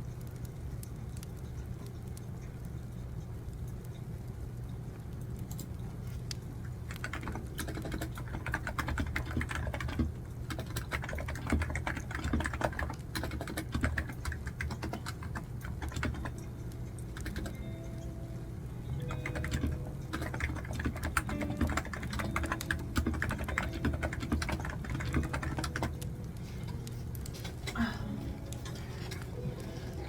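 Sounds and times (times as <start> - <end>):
typing on computer keyboard: 6.7 - 18.0, 19.0 - 27.6.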